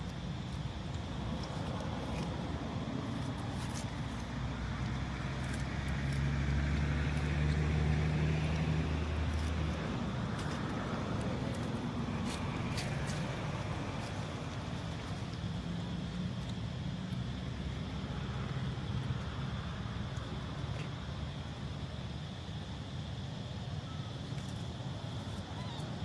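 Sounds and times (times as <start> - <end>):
vehicle engine humming: 0.0 - 23.5
outdoor background noise: 0.0 - 26.0.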